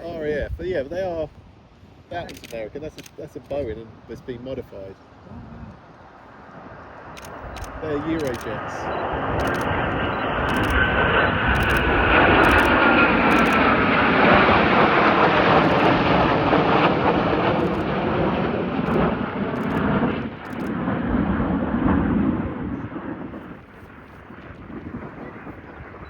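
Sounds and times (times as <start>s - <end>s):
jet engines roaring overhead: 5.8s - 26.0s.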